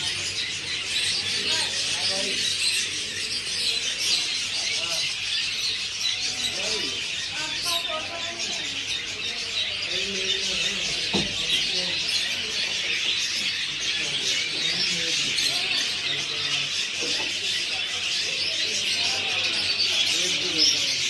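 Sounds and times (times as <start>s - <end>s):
birds chirping and chattering: 0.0s - 21.0s
faint voices: 0.0s - 21.0s
knock: 11.1s - 11.6s.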